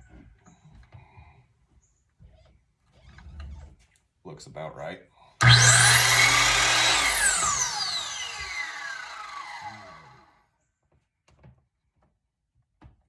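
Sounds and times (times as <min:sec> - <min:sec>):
electric miter saw running: 0:05.4 - 0:10.2
miter saw blade winding down: 0:05.4 - 0:10.2.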